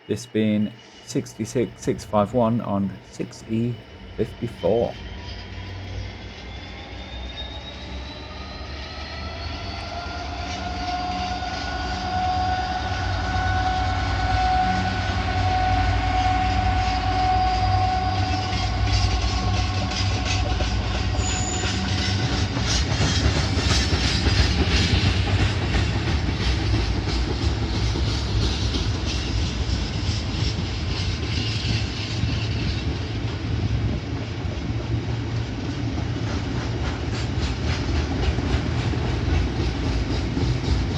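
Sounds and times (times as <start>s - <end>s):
diesel locomotive engine whine: 0.0s - 40.9s
train wheels clattering over rail joints: 19.8s - 40.9s.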